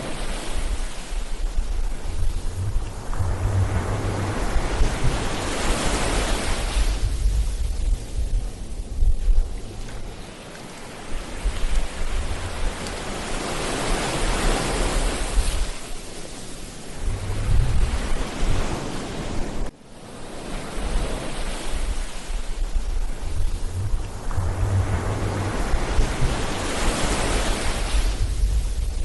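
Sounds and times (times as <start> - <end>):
ocean waves breaking on beach: 0.0 - 29.0
wind rumbling on microphone: 0.0 - 29.0.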